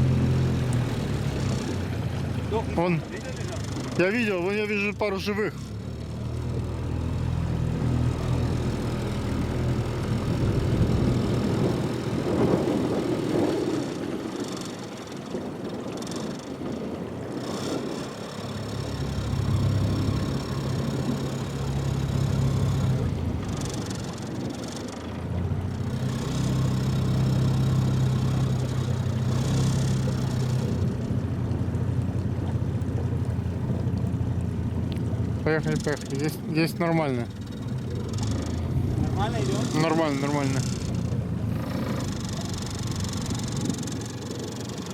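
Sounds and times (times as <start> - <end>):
outboard motor running: 0.0 - 44.9.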